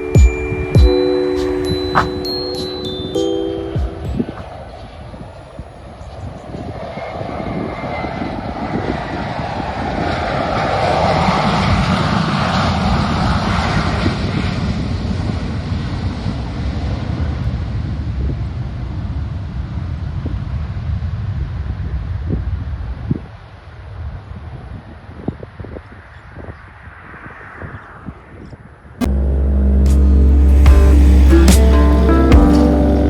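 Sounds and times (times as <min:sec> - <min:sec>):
jet airliner roaring overhead: 0:04.5 - 0:17.1.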